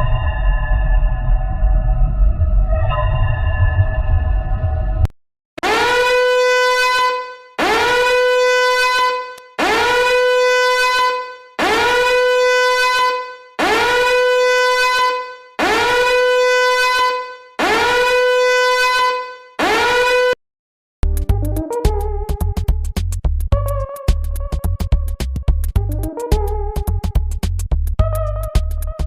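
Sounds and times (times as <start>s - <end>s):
horn-like sound effect blasts: 5.6s - 20.4s.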